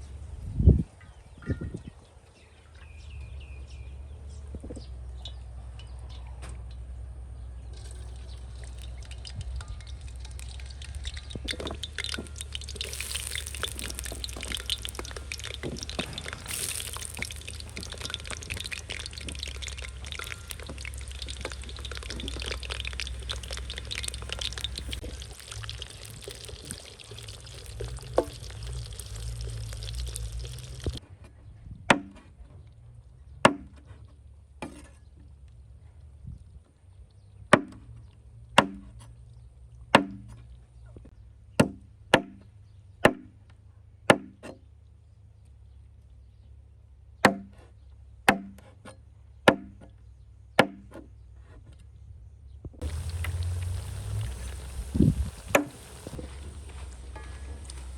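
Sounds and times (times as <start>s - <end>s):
water pouring and trickling: 7.6s - 31.0s, 52.8s - 57.9s
water splashes and drips: 7.7s - 31.0s, 52.8s - 57.9s.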